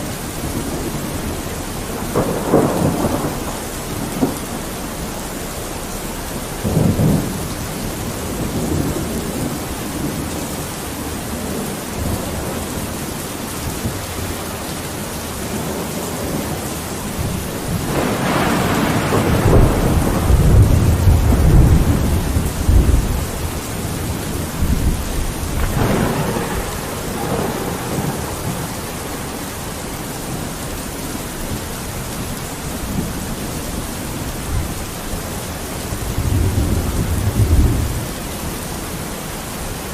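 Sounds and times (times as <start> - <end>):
rain on a window: 0.0 - 39.9
rolling thunder: 0.0 - 39.9.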